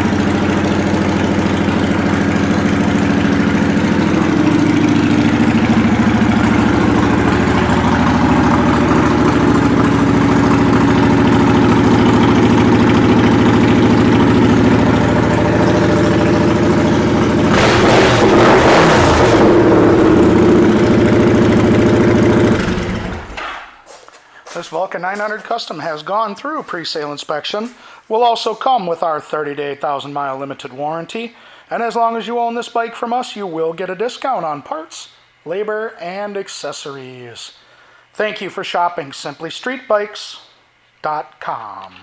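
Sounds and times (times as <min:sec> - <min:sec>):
motorcycle engine idling: 0:00.0 - 0:17.8, 0:19.0 - 0:23.4.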